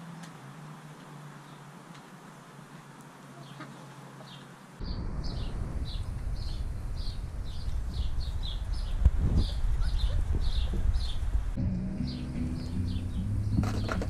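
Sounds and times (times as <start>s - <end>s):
bird chirping: 3.4s - 11.4s, 12.0s - 14.0s
low rumble: 4.8s - 14.0s.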